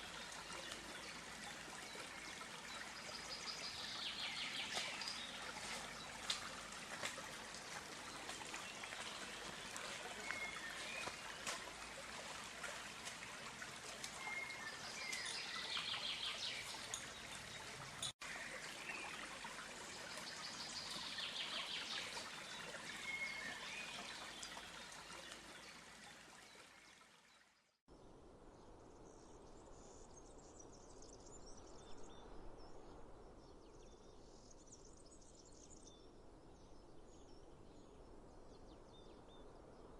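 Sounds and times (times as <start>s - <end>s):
stream water running: 0.0s - 27.8s.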